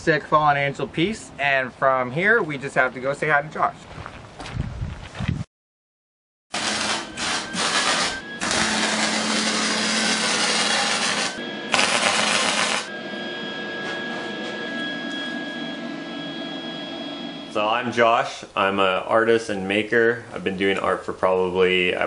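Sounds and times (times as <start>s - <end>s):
arc welding crackling hiss: 6.6s - 12.9s
faint steady whine: 6.6s - 19.3s.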